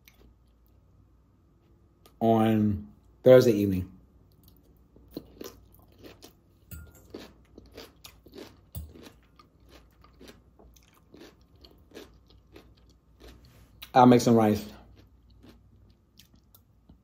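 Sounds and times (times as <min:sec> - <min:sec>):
chewing crunchy salad: 0:04.3 - 0:17.0.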